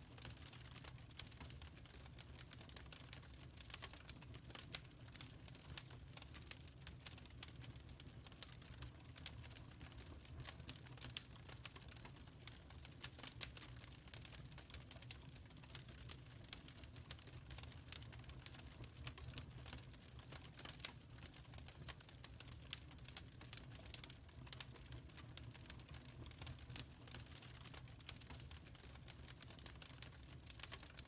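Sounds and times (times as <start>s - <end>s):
wood fire crackling: 0.1s - 31.0s.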